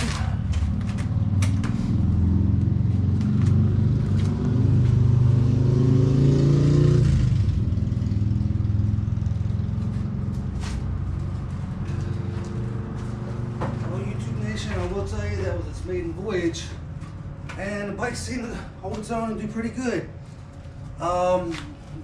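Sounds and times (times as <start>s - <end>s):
motorcycle engine running: 0.0s - 15.4s.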